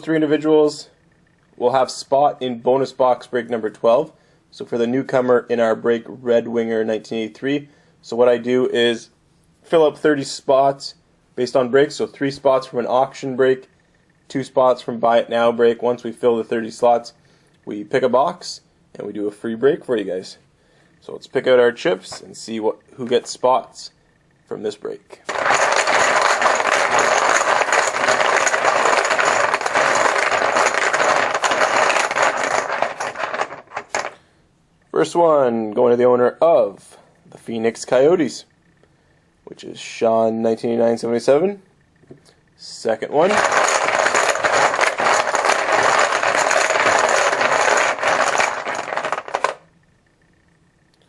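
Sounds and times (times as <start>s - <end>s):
chips clattering in a bucket: 25.3s - 34.2s, 43.2s - 49.6s.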